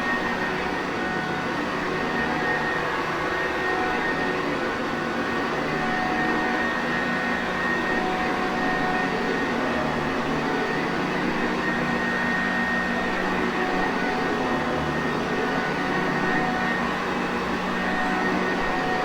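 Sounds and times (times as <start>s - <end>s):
vacuum cleaner running: 9.0s - 19.0s.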